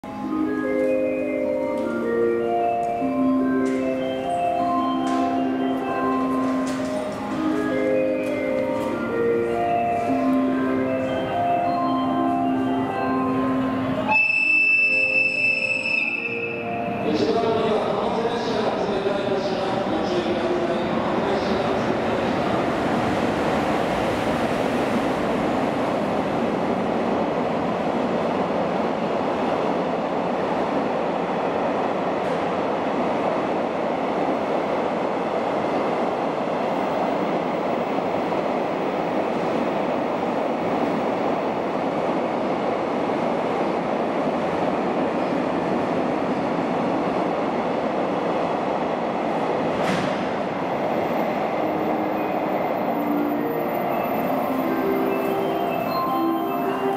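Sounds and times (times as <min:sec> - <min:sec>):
freight train wheels rumbling: 0:01.5 - 0:14.1, 0:16.6 - 0:56.9.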